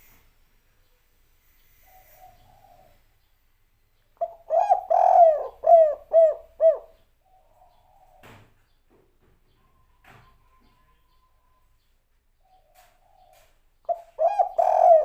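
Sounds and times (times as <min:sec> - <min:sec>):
dove cooing: 0:01.8 - 0:03.0, 0:04.2 - 0:08.3, 0:12.5 - 0:15.0.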